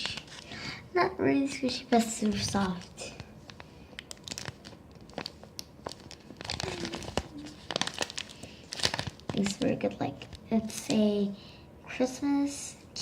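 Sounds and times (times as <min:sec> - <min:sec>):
squishy crinkling and crackling: 0:01.9 - 0:11.2.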